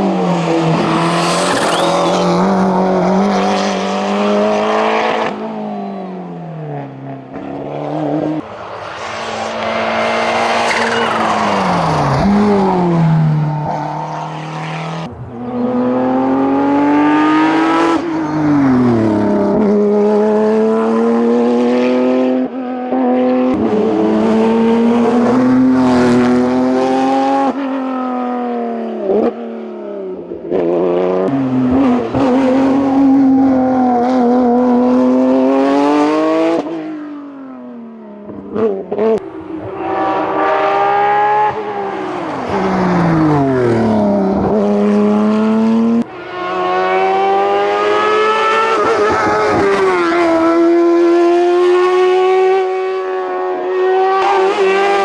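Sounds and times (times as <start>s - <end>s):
race car engine at high revs: 0.0s - 55.0s.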